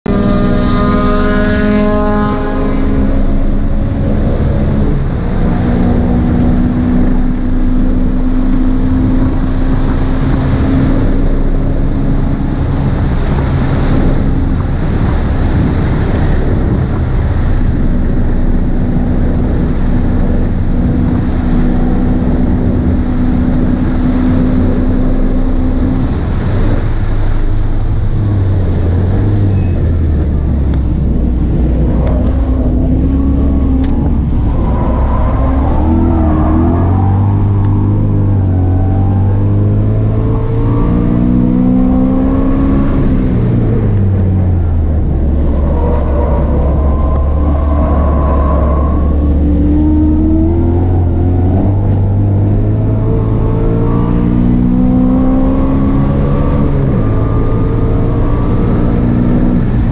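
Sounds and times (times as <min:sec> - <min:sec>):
car engine at full throttle: 0:00.0 - 0:59.9.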